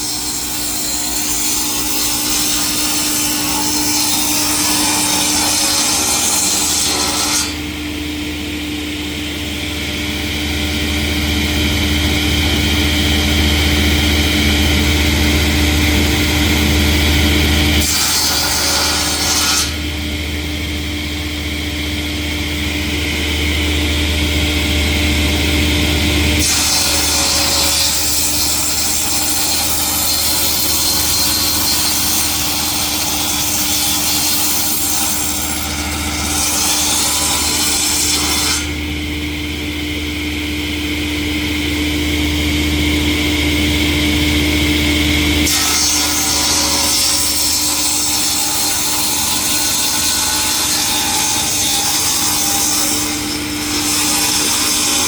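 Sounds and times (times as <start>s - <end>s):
saw blades rasping in wood: 0.0s - 7.6s, 17.7s - 19.9s, 26.4s - 38.8s, 45.4s - 55.0s
machine hum: 7.6s - 17.9s.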